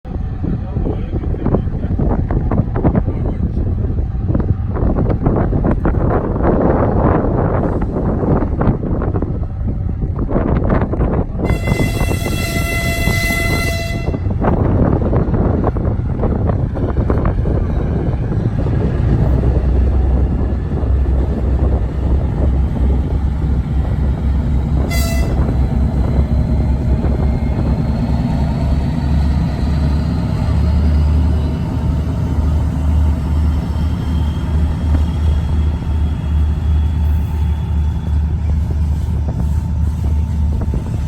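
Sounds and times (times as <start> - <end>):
diesel train rumbling past: 0.0 - 41.0
train horn blast: 11.4 - 14.4, 24.8 - 25.7.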